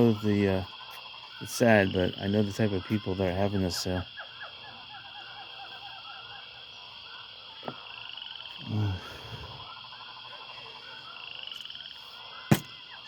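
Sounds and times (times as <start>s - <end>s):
frogs calling: 0.0s - 13.0s
low voice-like sound: 8.6s - 9.6s.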